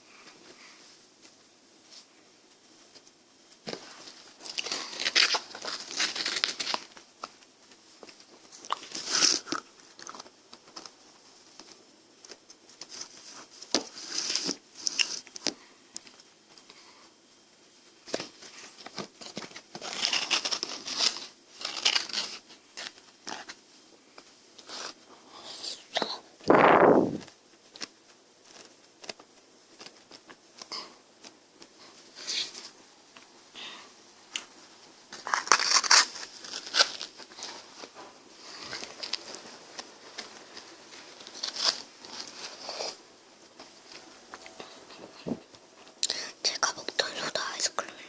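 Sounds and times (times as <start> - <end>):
crunchy chewing of ice cream: 8.6 - 10.3.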